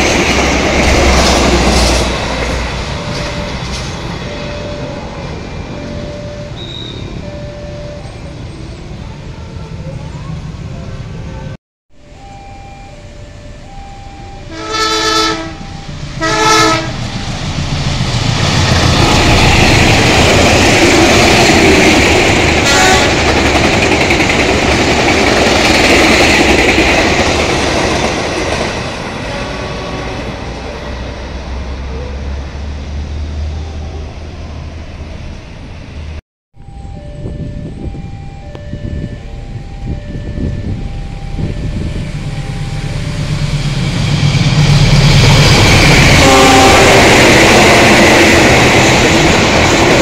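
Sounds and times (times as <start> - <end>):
train passing rumble: 0.0 - 50.0
train horn blasts: 14.5 - 17.6, 22.6 - 23.3, 29.2 - 30.6, 45.8 - 48.6.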